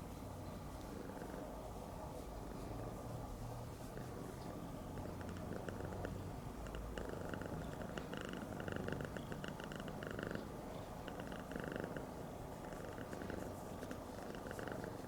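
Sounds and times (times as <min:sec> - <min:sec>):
cat purring: 0:00.4 - 0:15.0.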